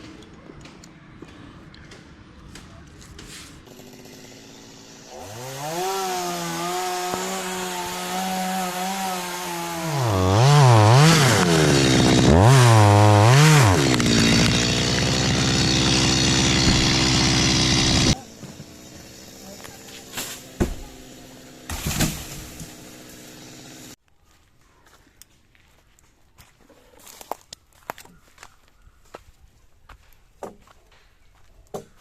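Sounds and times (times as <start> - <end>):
chainsaw engine revving: 3.7 - 24.0.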